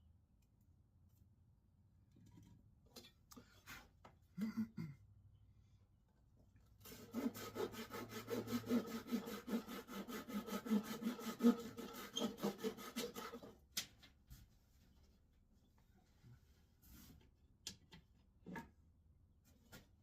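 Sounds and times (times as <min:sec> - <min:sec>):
hand saw cutting wood: 0:06.8 - 0:13.6.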